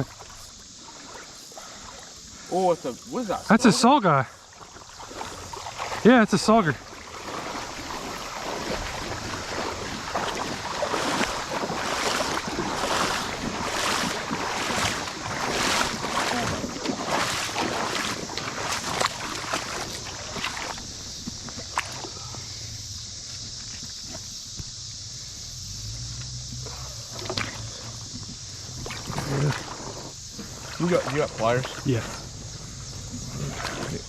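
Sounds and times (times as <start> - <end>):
creek water splashing: 0.0 - 34.0.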